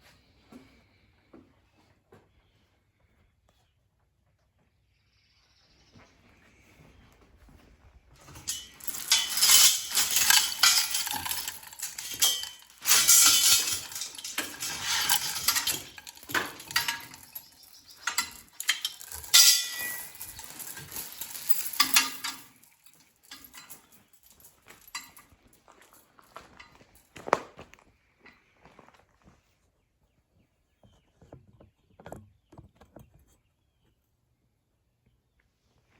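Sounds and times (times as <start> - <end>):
metal scraping and clattering: 8.2 - 25.2.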